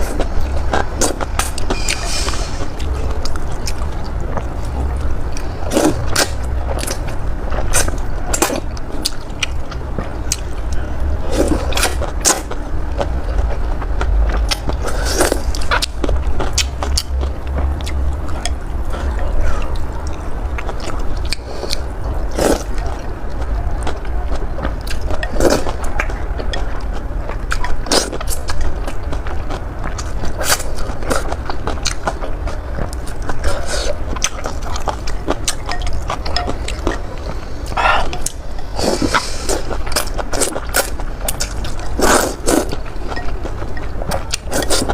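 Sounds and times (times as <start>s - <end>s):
low rumble: 0.0s - 42.0s
person chewing noodles: 0.0s - 44.9s
mouth smacks: 37.6s - 39.8s.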